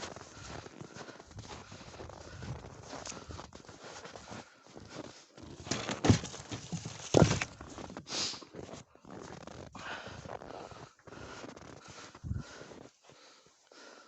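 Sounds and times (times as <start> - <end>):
footsteps in snow: 0.0 - 13.4
firewood rounds knocking together: 5.7 - 7.6.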